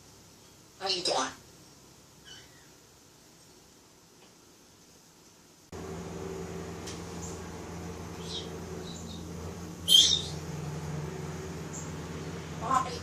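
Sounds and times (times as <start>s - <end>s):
steady mechanical hum: 5.5s - 13.0s
parrot chirping: 8.0s - 10.7s.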